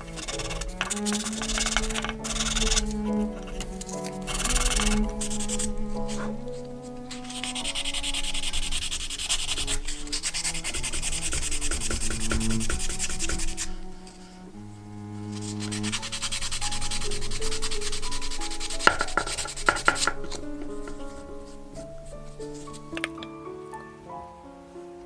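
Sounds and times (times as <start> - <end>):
hand rubbing on a surface: 15.3 - 23.0.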